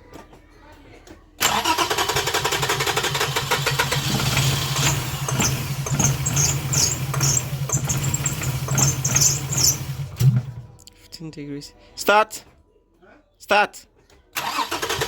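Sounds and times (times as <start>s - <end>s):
starter motor cranking engine: 1.4s - 10.6s, 14.4s - 15.0s.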